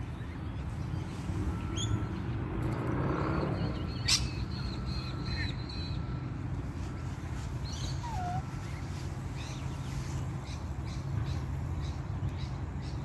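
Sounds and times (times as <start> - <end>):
birds chirping: 3.0 - 13.0.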